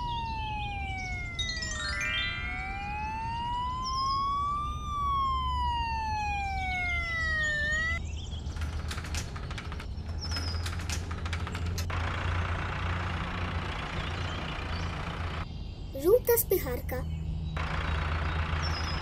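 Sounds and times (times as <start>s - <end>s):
police siren wailing: 0.0s - 8.0s
rising sweep of tones: 0.0s - 8.0s
low engine hum: 0.0s - 19.0s
roller door rattling: 8.3s - 15.4s.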